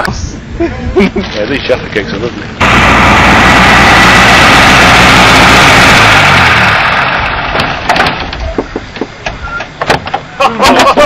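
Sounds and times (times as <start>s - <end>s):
rally car engine driving: 2.4s - 11.0s.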